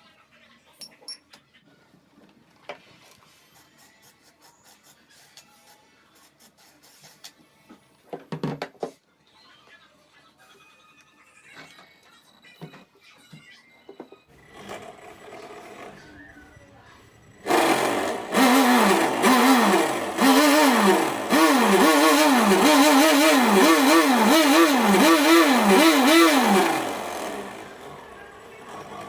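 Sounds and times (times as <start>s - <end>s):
small motor revving: 14.4s - 16.2s, 17.4s - 29.0s.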